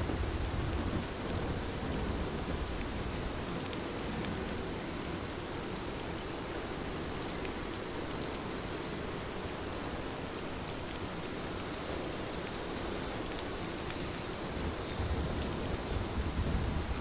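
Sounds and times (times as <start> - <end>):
low rumble of thunder: 0.0 - 4.7, 14.4 - 17.0
heavy rain pouring: 0.0 - 17.0.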